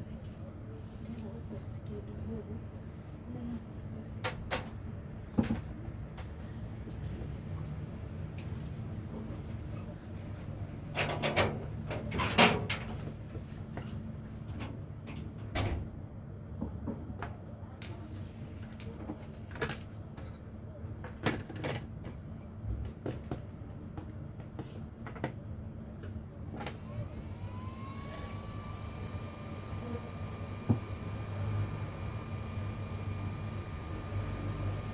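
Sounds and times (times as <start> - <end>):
steady low hum: 25.6 - 34.9.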